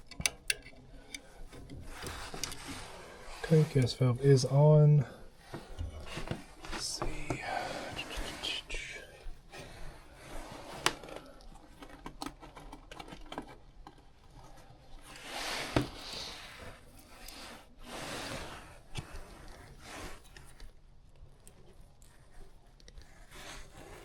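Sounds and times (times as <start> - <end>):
handling clicks taps and rustles: 0.0 - 4.4, 10.8 - 14.6.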